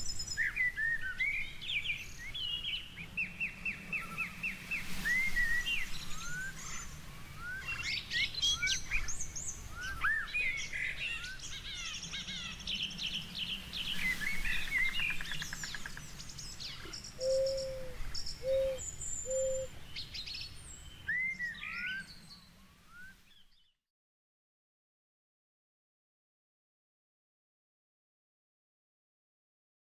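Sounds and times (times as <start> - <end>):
birds chirping and singing: 0.0 - 23.7.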